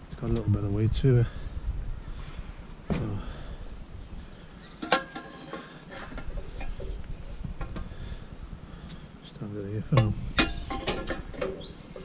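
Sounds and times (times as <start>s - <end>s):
scrap metal clanking: 4.7s - 7.9s, 9.9s - 12.0s.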